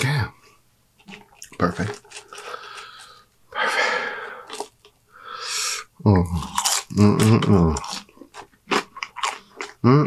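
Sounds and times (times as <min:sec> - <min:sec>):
man chewing: 0:01.0 - 0:10.0
man humming mmm: 0:06.1 - 0:07.8.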